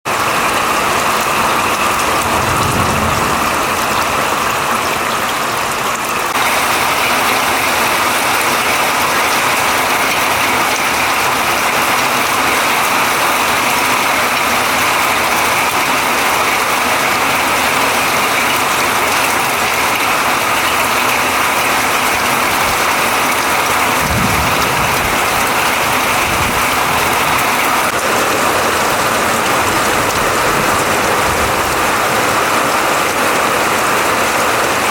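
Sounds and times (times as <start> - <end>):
heavy rain pelting down: 0.0 - 34.9
low rumble: 2.0 - 5.2.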